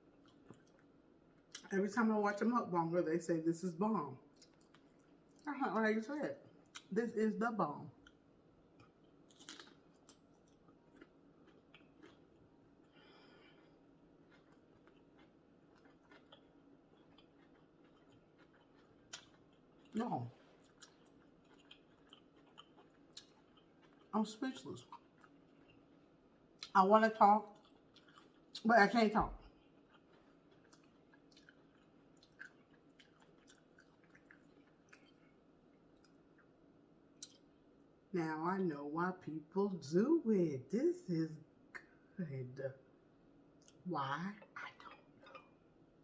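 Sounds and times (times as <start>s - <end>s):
faint chewing: 0.0s - 1.7s, 4.3s - 5.5s, 8.0s - 26.8s, 27.4s - 28.7s, 29.3s - 36.6s
low room hum: 0.0s - 46.0s.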